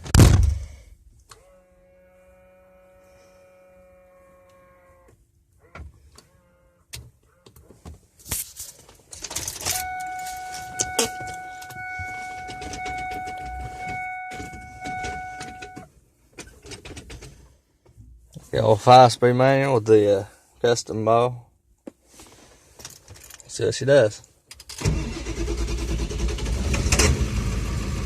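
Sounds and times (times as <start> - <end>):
diesel engine cranking: 9.2 - 17.2, 24.5 - 28.0.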